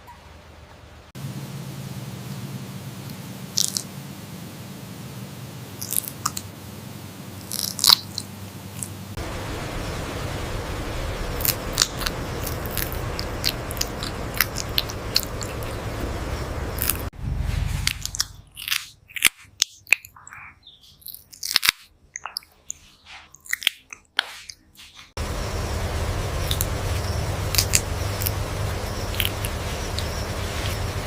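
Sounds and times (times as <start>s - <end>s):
steady hiss: 1.2s - 17.1s
parrot chewing: 9.6s - 19.3s, 25.9s - 31.0s.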